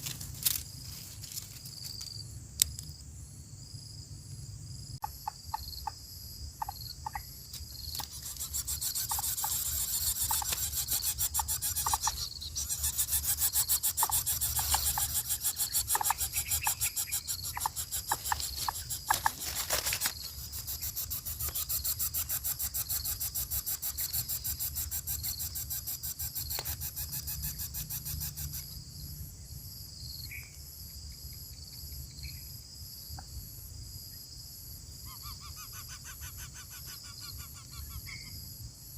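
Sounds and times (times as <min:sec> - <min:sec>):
insect buzzing: 0:05.0 - 0:29.1, 0:35.0 - 0:38.6.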